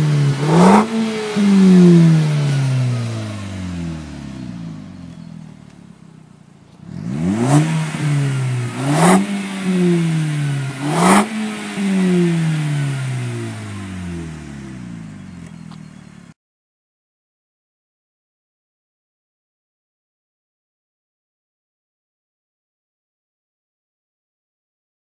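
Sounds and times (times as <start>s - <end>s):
car engine throttle blips: 0.0s - 16.4s.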